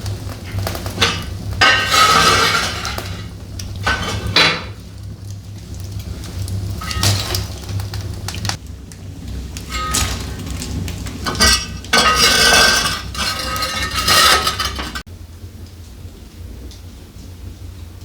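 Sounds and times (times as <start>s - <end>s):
dishes and utensils clattering: 0.5s - 4.8s, 6.8s - 7.8s, 9.6s - 15.1s.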